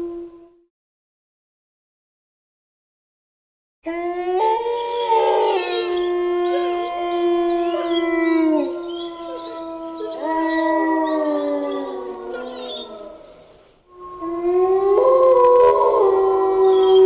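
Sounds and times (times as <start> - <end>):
wolves howling in chorus: 3.9 - 17.0.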